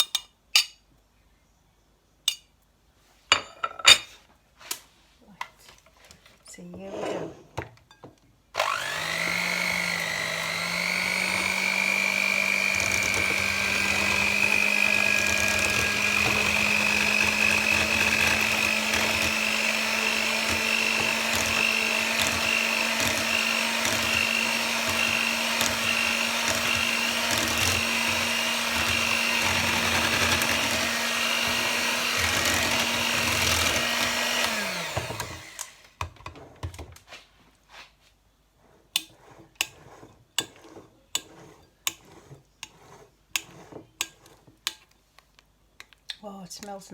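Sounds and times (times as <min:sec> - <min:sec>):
electric mixer whining: 0:08.6 - 0:36.0.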